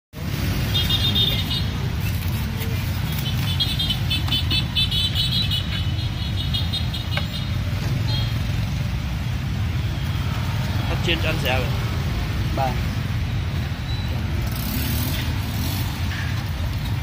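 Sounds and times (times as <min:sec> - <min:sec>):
street traffic rumble: 0:00.1 - 0:17.0.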